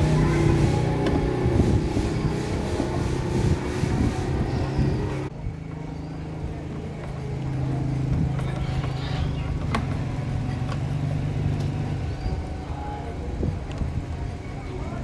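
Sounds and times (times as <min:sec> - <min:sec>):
motor humming: 0:00.0 - 0:05.3.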